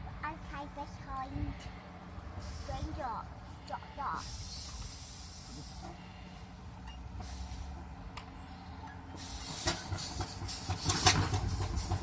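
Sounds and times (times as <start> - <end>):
steam engine exhaust chuffing: 0.5 - 12.0
low steam hiss: 2.3 - 7.9.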